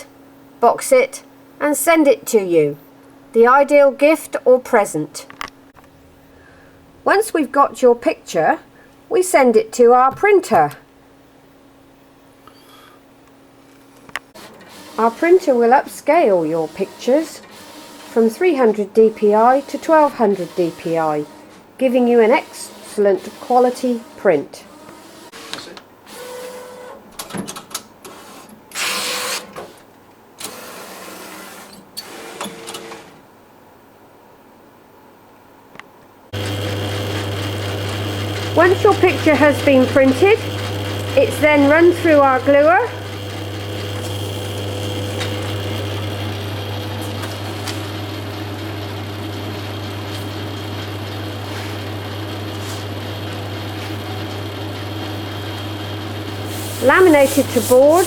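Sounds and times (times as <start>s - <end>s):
printer whirring and clicking: 14.4s - 15.4s, 16.6s - 18.4s, 19.0s - 21.5s, 30.4s - 33.1s, 36.4s - 58.0s
printer low hum: 36.3s - 58.0s.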